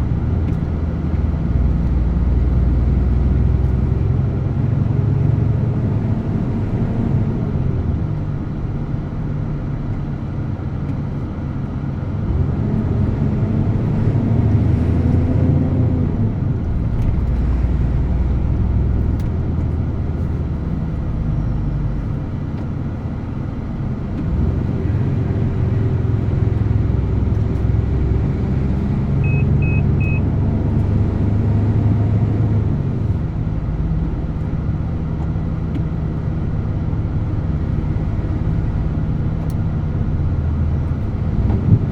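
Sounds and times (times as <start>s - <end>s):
short high beeps: 29.2s - 30.2s.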